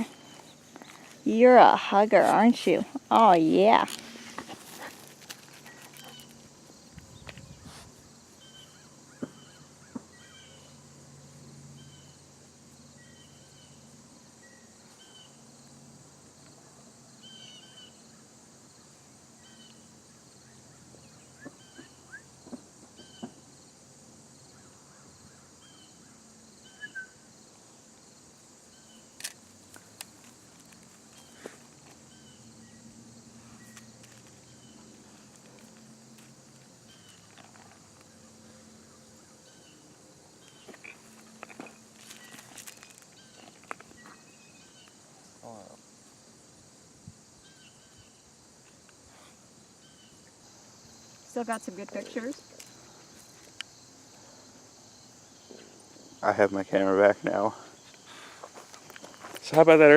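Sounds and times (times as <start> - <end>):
small birds chirping: 0.0 - 10.8, 19.4 - 23.4, 28.7 - 32.9, 36.7 - 45.8, 47.4 - 59.6.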